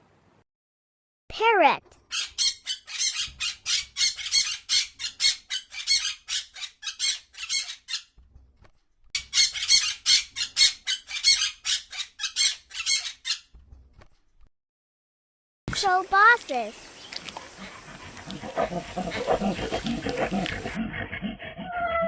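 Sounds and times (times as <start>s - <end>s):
parrot squawking: 2.1s - 8.1s, 9.2s - 13.5s.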